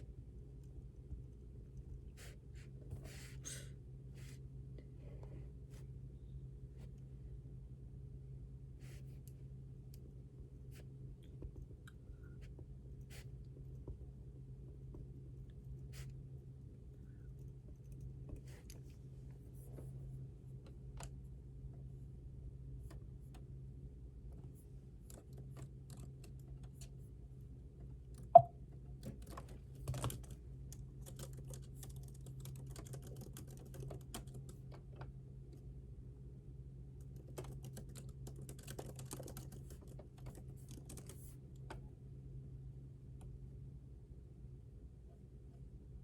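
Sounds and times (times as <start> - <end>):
steady low hum: 0.0 - 46.0
typing on computer keyboard: 25.0 - 26.9, 29.0 - 34.9, 37.0 - 41.3.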